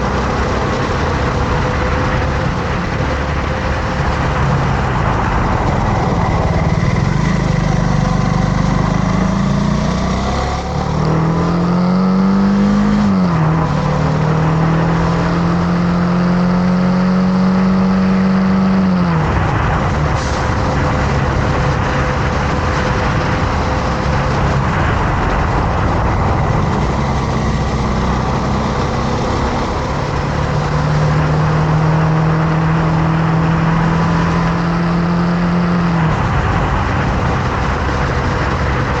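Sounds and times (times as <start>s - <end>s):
motorcycle engine running: 0.0s - 12.1s
wind noise: 0.0s - 39.0s.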